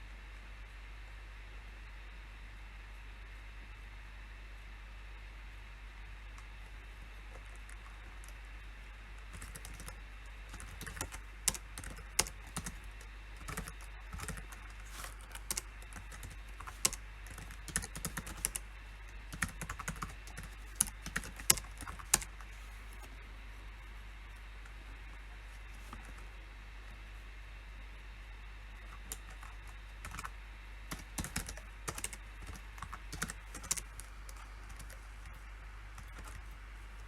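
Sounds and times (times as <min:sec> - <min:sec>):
faint steady hum: 0:00.0 - 0:37.0
keyboard typing: 0:06.4 - 0:23.2, 0:24.6 - 0:26.3, 0:28.8 - 0:30.3, 0:30.9 - 0:35.4, 0:36.0 - 0:37.0.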